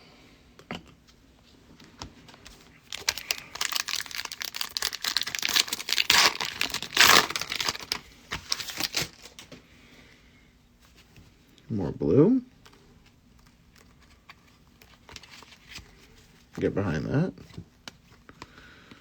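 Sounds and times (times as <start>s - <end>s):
foil wrapper tearing and crinkling: 2.8s - 9.4s.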